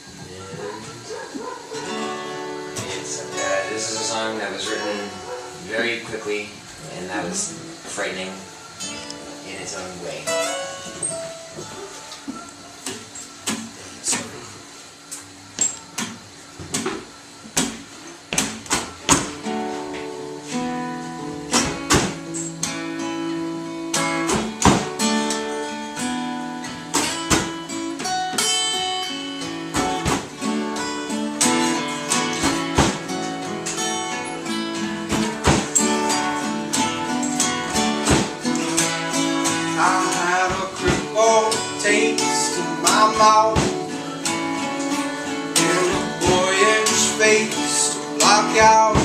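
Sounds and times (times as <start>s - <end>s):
strummed guitar band music: 0.0s - 49.0s
person singing: 39.6s - 49.0s.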